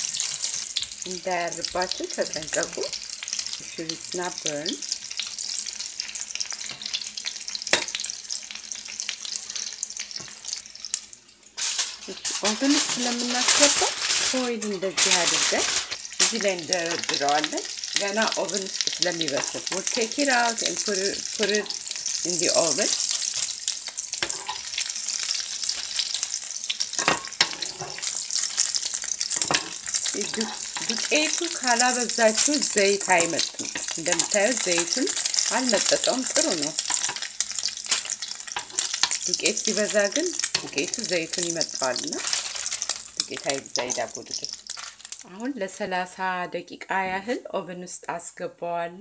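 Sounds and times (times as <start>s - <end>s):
food frying in oil: 0.0s - 45.4s
metal tongs clicking on pan: 19.2s - 19.9s, 37.9s - 41.4s.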